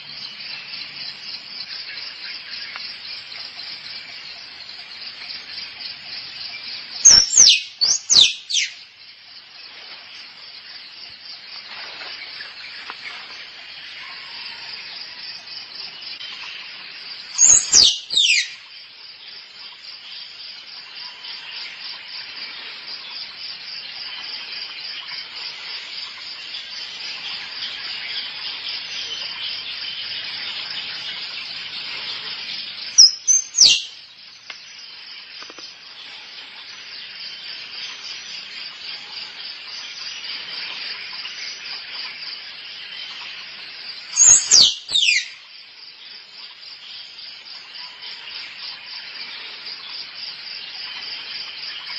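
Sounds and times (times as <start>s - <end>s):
insect chorus: 0.0s - 51.9s
squirrel calls: 7.0s - 8.8s, 17.4s - 18.6s, 33.0s - 33.9s, 44.2s - 45.4s.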